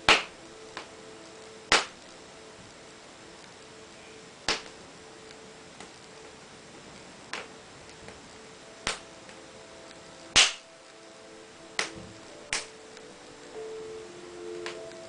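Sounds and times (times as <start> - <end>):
faint steady whistle: 0.0 - 6.4
wood fire crackling: 0.0 - 15.0
sharp fire pops: 0.1 - 0.9, 1.7 - 2.0, 4.4 - 4.8, 6.9 - 8.2, 8.8 - 9.1, 10.3 - 10.7, 11.8 - 12.8.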